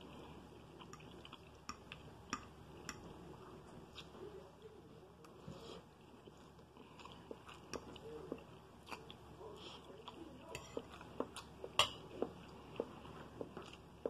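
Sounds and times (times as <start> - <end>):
chewing with mouth smacks: 0.1 - 3.1, 6.0 - 14.0.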